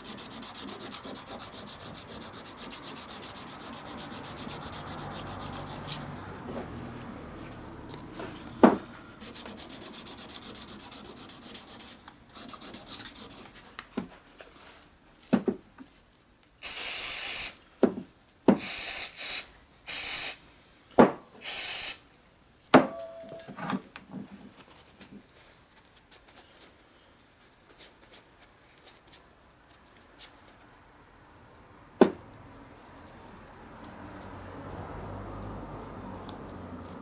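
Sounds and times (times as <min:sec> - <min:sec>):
hissing spray bursts: 0:16.6 - 0:17.6, 0:18.6 - 0:20.4, 0:21.4 - 0:22.0.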